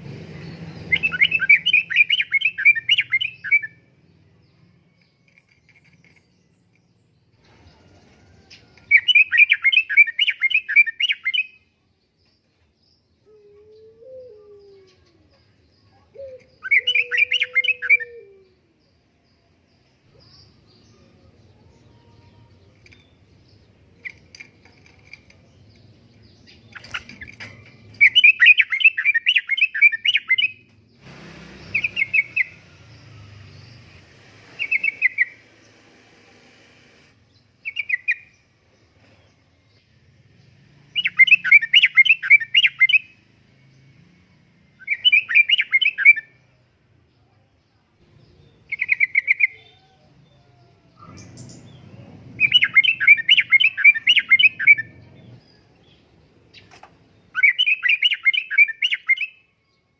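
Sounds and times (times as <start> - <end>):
bird singing bubbly chattering phrases: 51.1 - 55.4.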